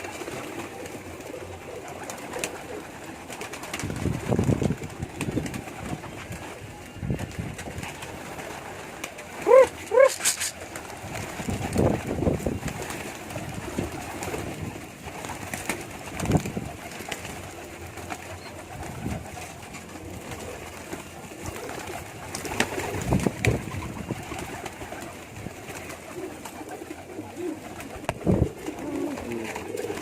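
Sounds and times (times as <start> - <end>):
pigeons cooing: 0.0 - 3.8, 8.0 - 10.8, 16.0 - 30.0
knocks or wing flaps: 15.2 - 17.4, 21.5 - 25.1, 27.7 - 30.0.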